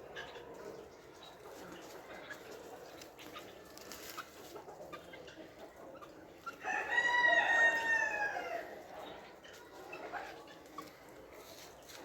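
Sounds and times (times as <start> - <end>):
rooster crowing: 6.6 - 8.6.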